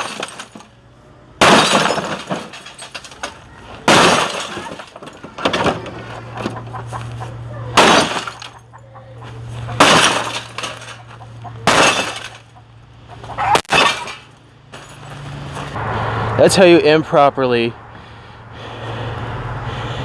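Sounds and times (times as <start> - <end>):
sledgehammer smashing television: 0.0 - 0.7, 1.4 - 6.0, 7.8 - 8.5, 9.8 - 11.0, 11.6 - 12.5, 13.6 - 14.3
debris clattering: 0.0 - 0.8, 1.4 - 6.9, 7.7 - 8.8, 9.7 - 12.6, 13.5 - 15.2.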